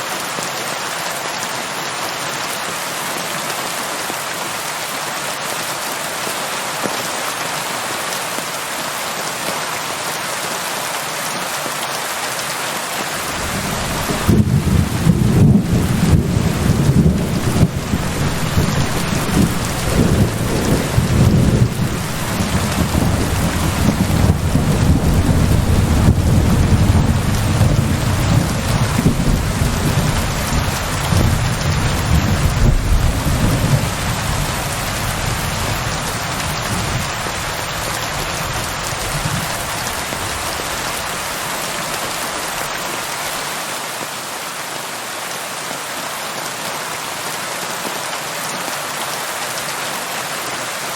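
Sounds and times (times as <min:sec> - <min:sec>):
steady rain: 0:00.0 - 0:50.9
low thunder rumble: 0:13.2 - 0:37.2.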